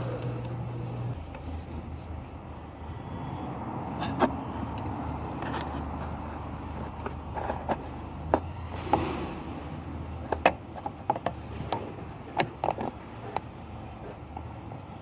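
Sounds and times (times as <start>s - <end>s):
hand tools clicking on engine: 10.2s - 14.5s.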